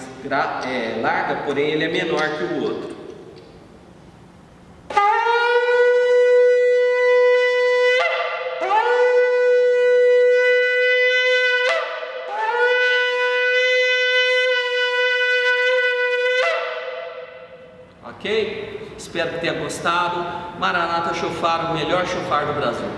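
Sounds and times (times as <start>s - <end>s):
shofar blasts: 4.9s - 17.8s.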